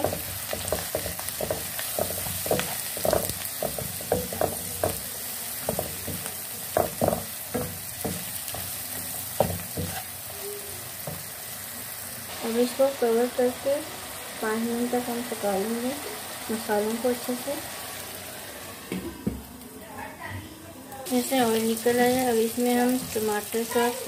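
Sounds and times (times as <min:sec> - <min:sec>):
vegetables sizzling in oil: 0:00.0 - 0:20.0, 0:21.0 - 0:24.0
spatula scraping a pan: 0:09.6 - 0:10.2.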